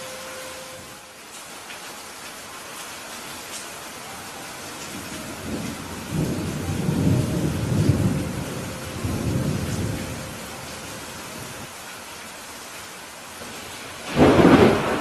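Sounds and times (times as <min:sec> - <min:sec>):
steady rain: 0:00.0 - 0:15.0
thunder rumbling: 0:04.7 - 0:11.7, 0:13.4 - 0:15.0.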